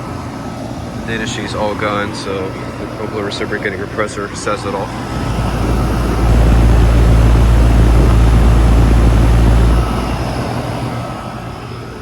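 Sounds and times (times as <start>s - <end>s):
condenser fan rushing: 0.0s - 12.0s
compressor humming: 4.8s - 11.4s.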